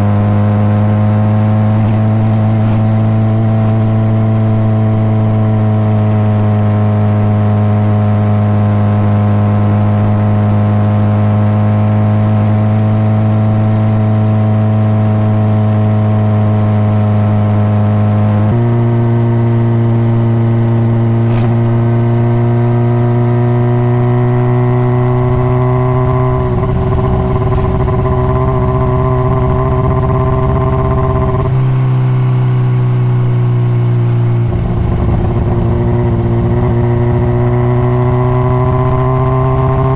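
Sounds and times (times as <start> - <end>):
motorcycle engine running: 0.0 - 39.9
low rumbling noise: 34.0 - 39.2.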